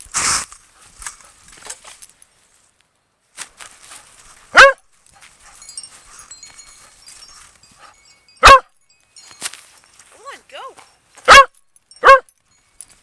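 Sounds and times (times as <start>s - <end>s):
faint rustling: 0.3s - 11.3s
dog barking: 4.5s - 4.8s, 8.4s - 8.7s, 11.3s - 12.3s.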